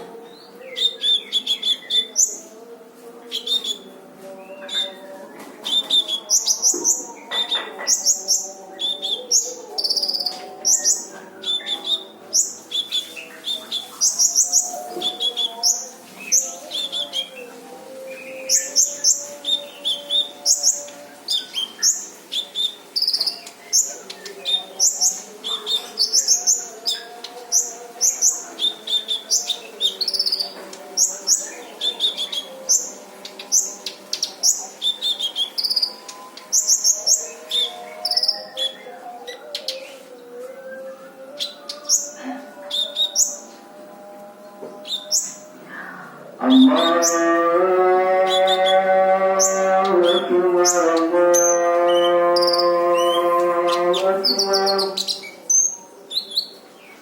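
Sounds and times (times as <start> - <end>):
sunbird singing: 3.3 - 17.5, 18.1 - 40.0, 48.2 - 57.0.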